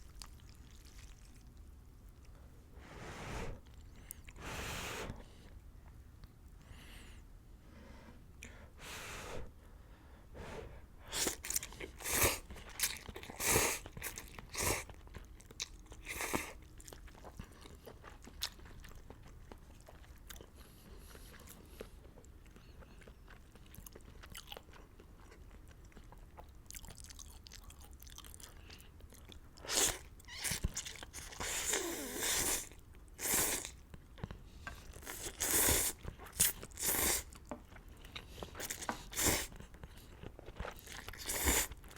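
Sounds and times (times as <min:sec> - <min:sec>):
slurping: 0:35.0 - 0:37.3, 0:40.7 - 0:41.8.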